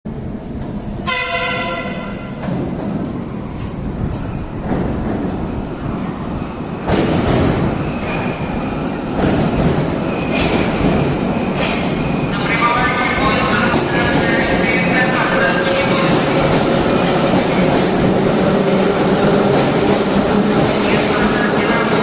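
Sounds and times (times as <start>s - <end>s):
train rumbling on track: 0.1s - 22.0s
train horn blast: 1.0s - 2.3s.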